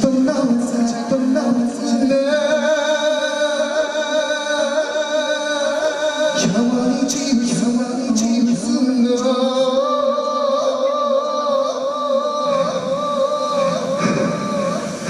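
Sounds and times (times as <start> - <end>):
man singing a long high note: 0.0 - 15.0
backing music: 11.9 - 15.0
loud wash of noise: 12.3 - 15.0.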